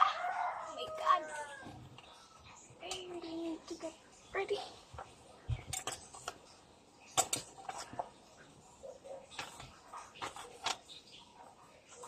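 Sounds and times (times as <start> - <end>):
small objects clicking and tapping: 4.9 - 8.2, 9.3 - 11.2.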